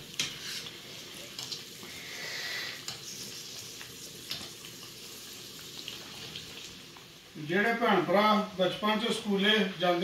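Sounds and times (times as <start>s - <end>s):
food frying in hot oil: 0.0s - 9.9s.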